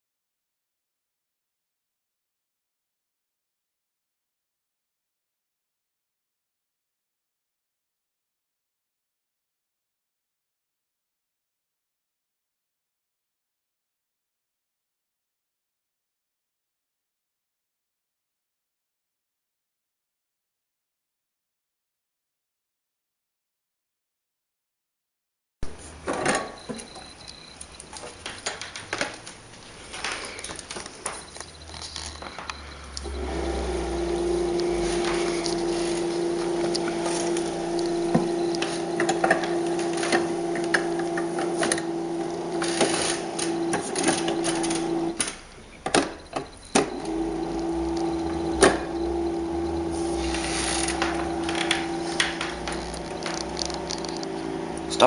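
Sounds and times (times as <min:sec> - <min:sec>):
small electric motor humming: 0:46.9 - 0:55.0
metal parts clicking and knocking: 0:52.7 - 0:54.3.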